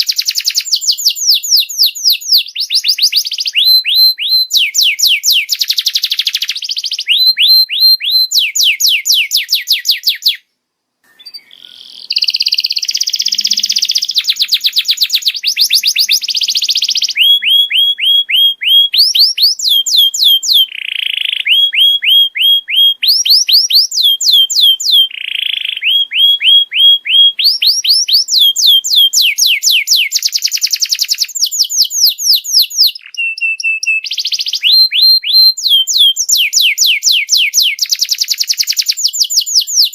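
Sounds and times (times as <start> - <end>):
canary singing in rolling trills: 0.0 - 10.4, 11.1 - 39.9.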